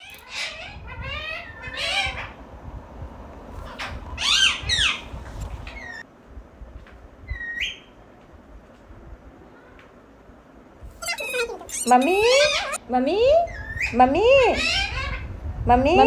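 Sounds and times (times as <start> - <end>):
parrot squawking: 11.0 - 12.8.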